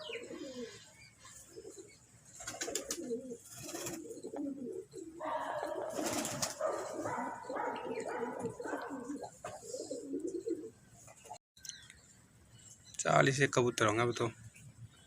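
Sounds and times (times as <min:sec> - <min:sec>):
pigeons cooing: 0:00.0 - 0:11.4.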